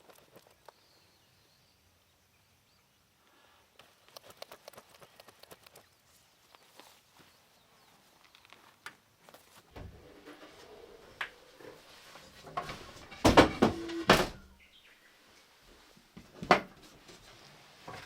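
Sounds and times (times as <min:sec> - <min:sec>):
knocks and clatter: 0:09.8 - 0:14.5.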